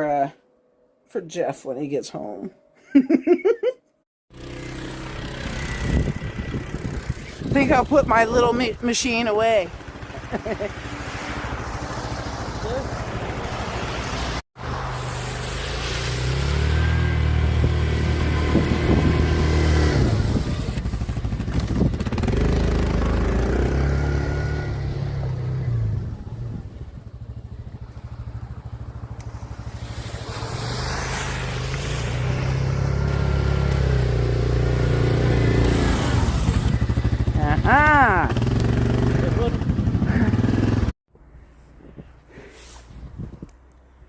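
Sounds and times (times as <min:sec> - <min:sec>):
snowblower engine running: 0:04.4 - 0:14.3, 0:16.3 - 0:25.9, 0:27.2 - 0:40.8.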